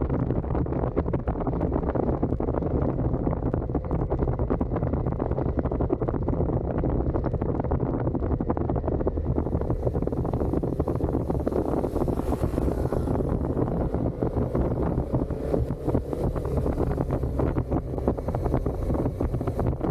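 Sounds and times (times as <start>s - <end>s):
motorcycle engine cruising: 0.0s - 19.9s
wind buffeting microphone: 0.0s - 19.9s.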